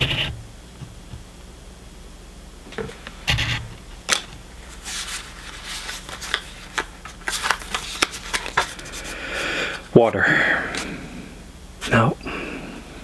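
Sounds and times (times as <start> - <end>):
trading cards flicking and rustling: 4.1 - 9.8.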